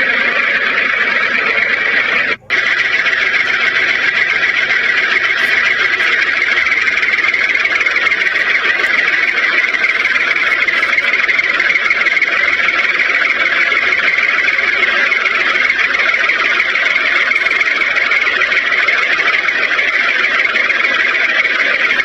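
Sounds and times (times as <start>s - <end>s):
small electric motor whirring: 0.0s - 22.0s.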